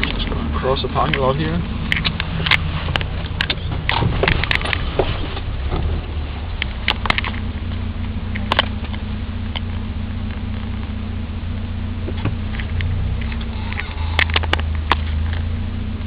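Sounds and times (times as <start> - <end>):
car engine running: 0.0 - 16.0
sharp clicks or rattles: 1.9 - 5.2.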